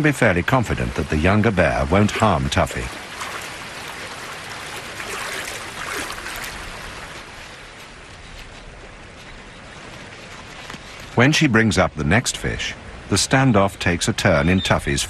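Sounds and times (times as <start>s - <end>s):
water rushing over rocks: 0.0s - 8.1s.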